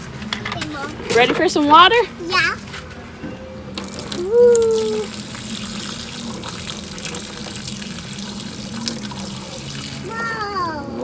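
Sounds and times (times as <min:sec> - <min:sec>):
water running from a tap: 0:03.8 - 0:11.0.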